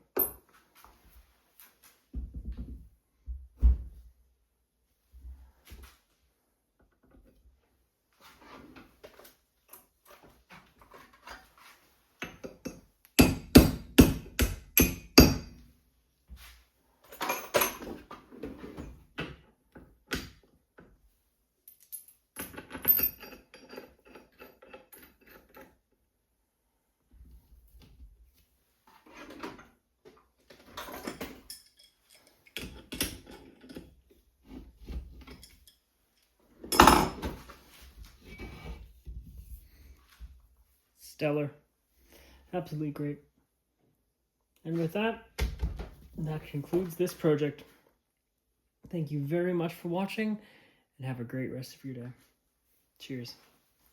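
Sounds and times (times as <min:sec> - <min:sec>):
metal tools clinking: 0:17.0 - 0:18.0, 0:21.7 - 0:25.7, 0:30.7 - 0:33.9, 0:35.2 - 0:37.3.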